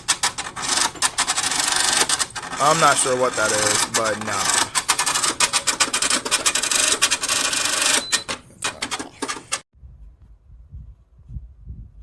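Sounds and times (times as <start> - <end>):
close rustling and scraping: 0.0 - 7.5
faint low rumble: 9.8 - 12.0.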